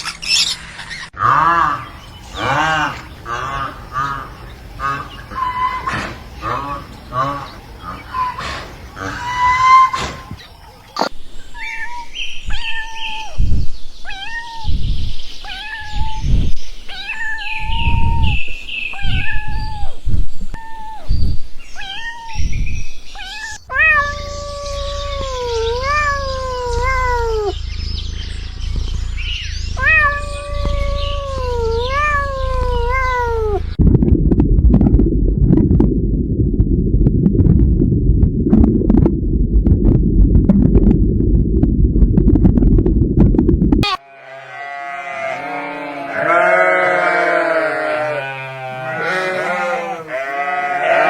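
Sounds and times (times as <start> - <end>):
cats meowing: 1.7 - 10.4, 21.8 - 22.5, 23.2 - 27.6, 29.7 - 33.8, 43.8 - 51.0
loud low rumbling: 23.9 - 43.8.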